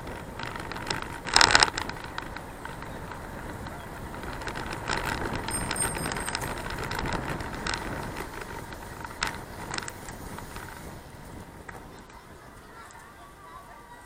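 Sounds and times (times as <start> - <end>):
sharp rattling clicks: 0.0 - 10.9
bicycle wind and road rumble: 0.0 - 14.0.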